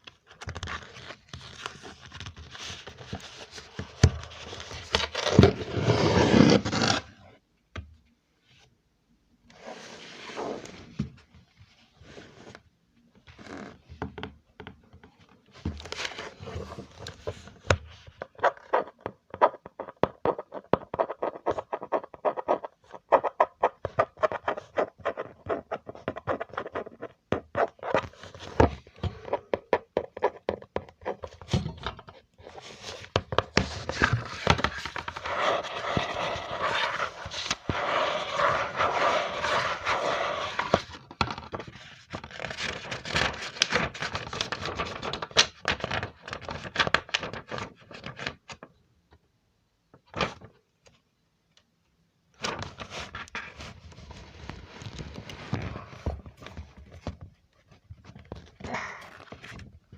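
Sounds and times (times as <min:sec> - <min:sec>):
scratching crackling texture: 0:33.8 - 0:41.0.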